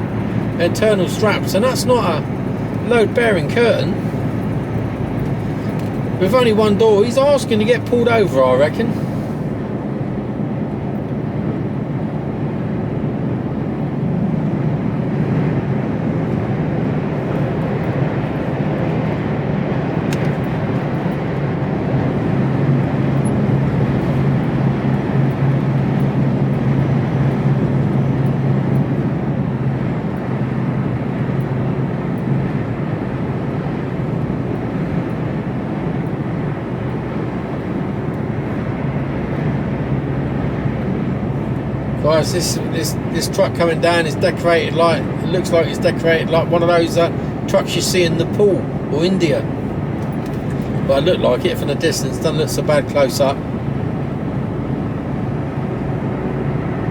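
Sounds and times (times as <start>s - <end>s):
lorry engine drone: 0.0s - 56.9s
tyre and road noise: 0.0s - 56.9s.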